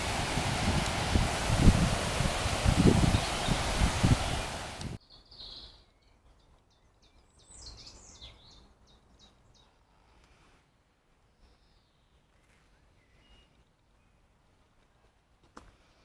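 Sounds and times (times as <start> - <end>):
faint outdoor hiss: 0.0 - 16.0
birds chirping: 2.7 - 9.8.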